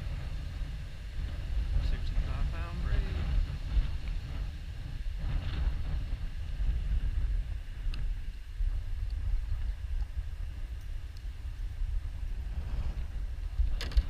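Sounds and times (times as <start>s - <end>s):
wind buffeting a microphone: 0.0s - 14.0s.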